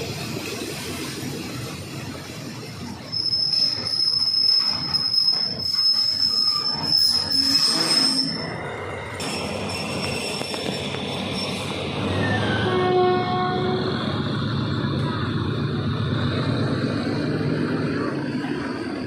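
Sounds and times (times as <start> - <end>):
train running noise: 0.0 - 19.0
train wheels squealing on rails: 2.2 - 14.9, 17.4 - 19.0.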